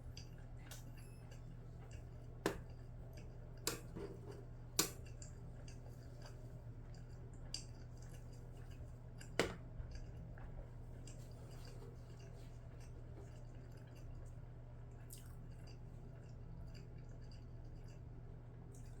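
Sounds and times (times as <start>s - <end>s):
low steady hum: 0.0s - 19.0s
faint chewing: 0.1s - 19.0s
utensil clicking against dish: 1.9s - 10.1s.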